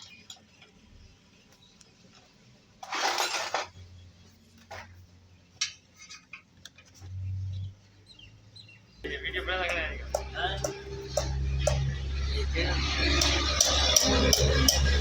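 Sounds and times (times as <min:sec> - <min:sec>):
metal tools clinking: 0:02.8 - 0:03.8
scraping rustle: 0:02.8 - 0:03.8.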